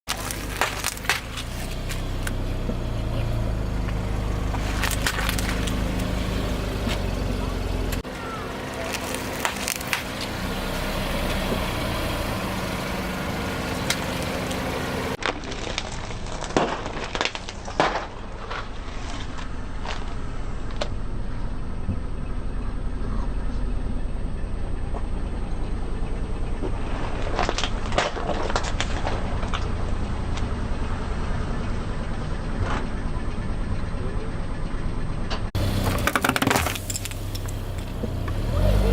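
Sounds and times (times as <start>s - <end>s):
car engine running: 0.0s - 38.9s
sharp cracks: 0.1s - 2.4s, 7.9s - 10.4s
tyre crushing brittle objects: 0.1s - 2.9s, 3.9s - 7.1s, 7.9s - 10.4s, 13.7s - 20.9s, 26.6s - 29.8s, 35.7s - 38.8s.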